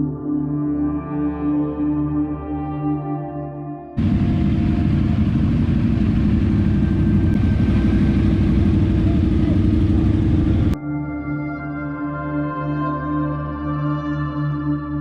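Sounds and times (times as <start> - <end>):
ambient music with singing bowls: 0.0 - 4.9, 6.8 - 15.0
motorcycle engines running: 4.0 - 10.8.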